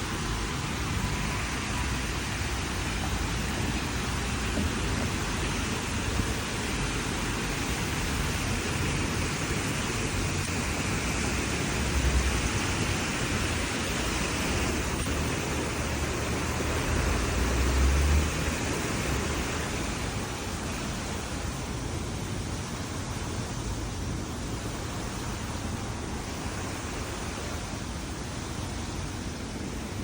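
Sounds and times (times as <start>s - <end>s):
even hiss: 0.0s - 30.0s.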